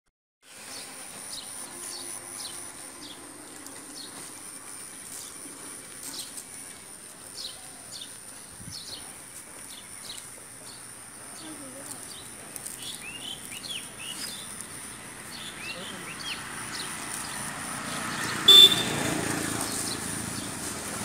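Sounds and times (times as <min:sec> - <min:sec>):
bird chirping: 0:07.3 - 0:19.0.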